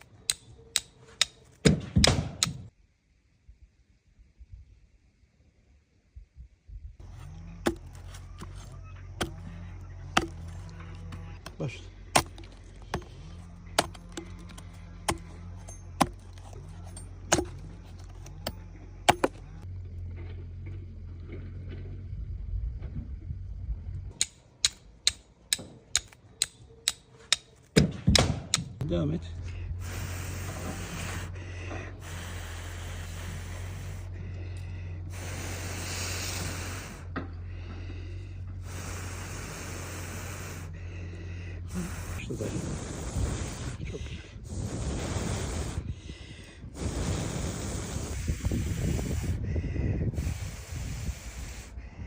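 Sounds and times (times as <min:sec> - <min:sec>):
flint and steel clicks: 0:00.0 - 0:02.7, 0:24.2 - 0:28.7
steady low hum: 0:06.8 - 0:52.0
person blowing hissing breaths: 0:29.8 - 0:52.0.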